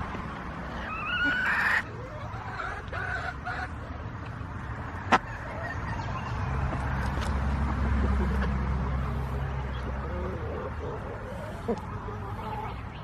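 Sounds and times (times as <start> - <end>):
chickens clucking: 0.0 - 13.0
low engine hum: 3.7 - 13.0.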